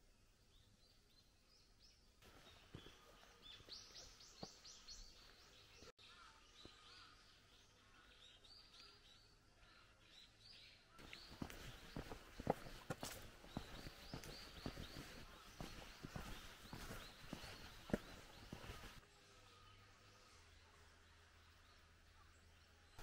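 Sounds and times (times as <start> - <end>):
small birds chirping: 0.2 - 23.0
footsteps on stone path: 2.2 - 5.9, 11.0 - 19.0.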